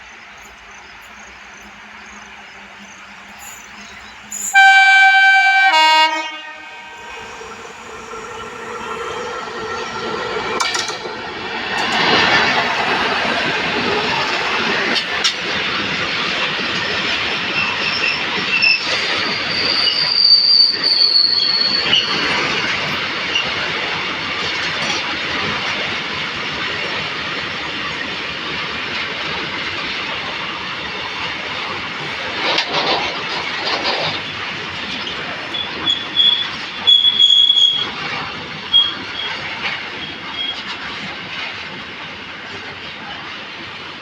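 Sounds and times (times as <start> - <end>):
train wheels rumbling: 0.0 - 44.0
high-pitched wheel squeal: 3.4 - 15.0, 35.5 - 38.0.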